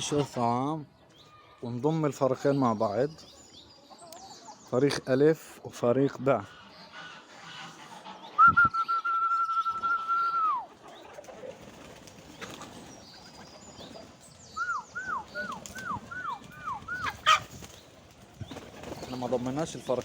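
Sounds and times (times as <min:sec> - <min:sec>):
person whistling a long note: 0:08.4 - 0:10.6
short falling whistles: 0:08.4 - 0:10.7.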